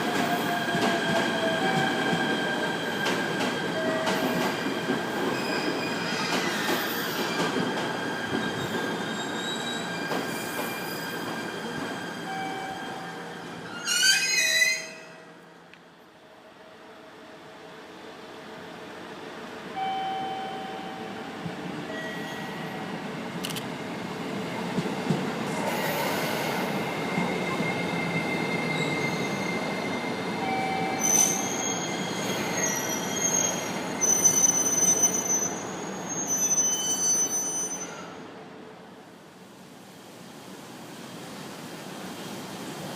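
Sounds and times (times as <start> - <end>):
wheel and brake squeals: 8.4 - 11.3, 13.6 - 15.2, 30.6 - 38.1
train rumbling past: 17.9 - 36.0.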